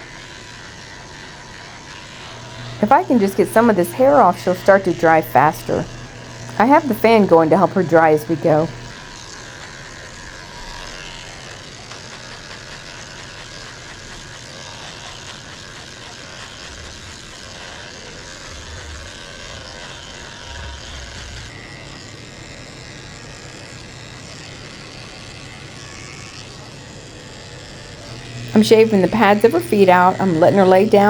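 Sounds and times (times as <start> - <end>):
electric clippers running: 0.0 - 31.0
drying fan rushing: 2.1 - 9.0, 27.9 - 31.0.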